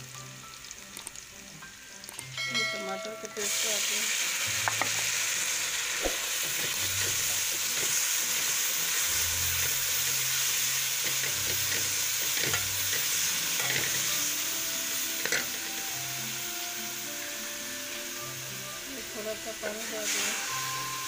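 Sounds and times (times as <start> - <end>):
masala sizzling in oil: 0.0 - 21.0
metal spoon scraping a pan: 6.3 - 14.5, 15.1 - 15.7.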